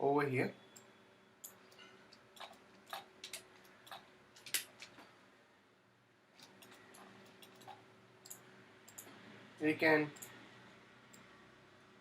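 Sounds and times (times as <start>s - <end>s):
faint steady hum: 0.0s - 12.0s
mouse and keyboard clicks: 1.7s - 5.1s, 6.4s - 9.1s.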